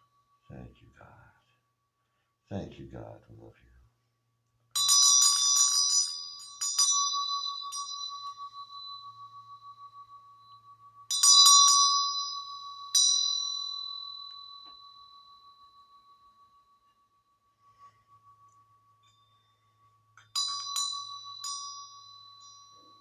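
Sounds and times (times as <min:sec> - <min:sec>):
metal bell ringing: 0:04.8 - 0:16.6, 0:19.0 - 0:23.0.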